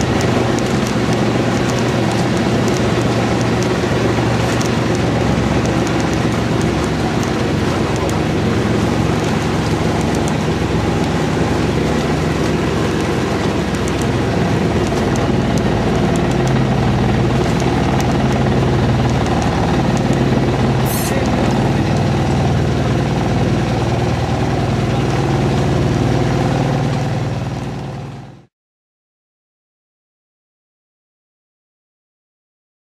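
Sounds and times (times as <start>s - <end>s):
boat engine running: 0.0s - 28.5s.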